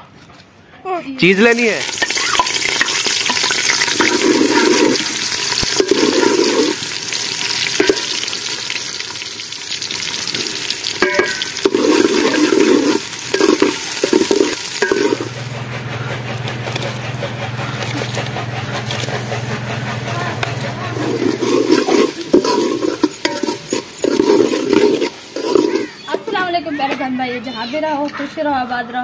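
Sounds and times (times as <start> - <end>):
onions sizzling in hot oil: 1.2 - 15.4, 21.1 - 26.4
ladle scraping metal pot: 1.5 - 26.8
ladle clinks: 1.8 - 15.6, 20.9 - 26.5.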